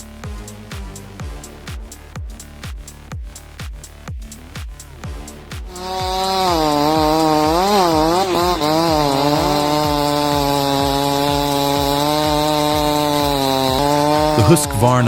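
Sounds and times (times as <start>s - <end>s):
chainsaw engine revving: 5.2s - 15.0s.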